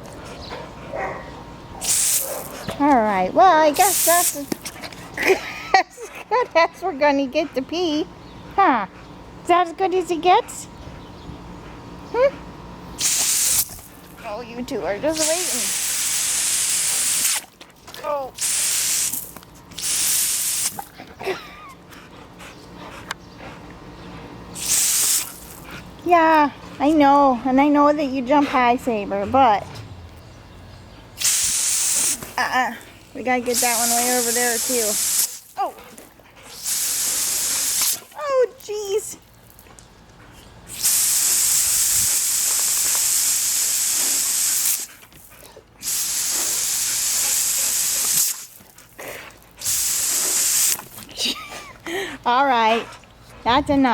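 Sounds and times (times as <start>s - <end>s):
garden hose spraying: 1.8s - 5.8s, 12.9s - 21.6s, 24.5s - 29.0s, 31.2s - 40.0s, 40.6s - 52.8s.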